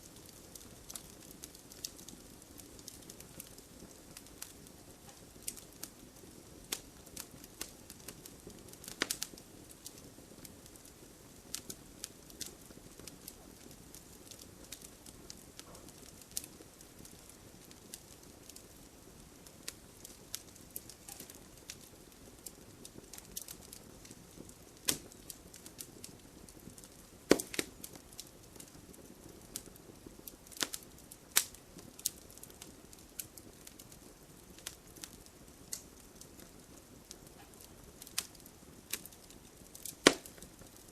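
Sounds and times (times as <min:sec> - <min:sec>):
fire crackling and popping: 0:00.0 - 0:40.9
soft steady hiss: 0:00.0 - 0:40.9.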